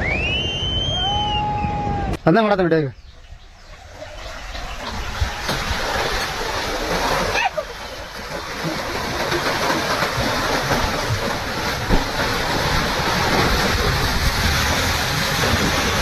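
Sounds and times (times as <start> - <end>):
turbulent water rushing: 3.8 - 16.0.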